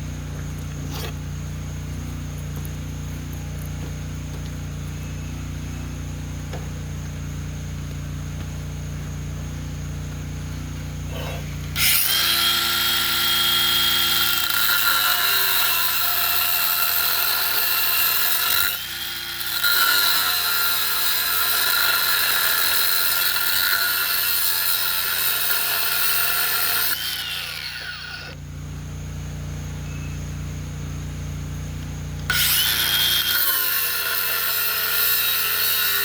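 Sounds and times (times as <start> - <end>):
power tool cutting steel pipe: 11.0 - 28.4, 32.2 - 36.0.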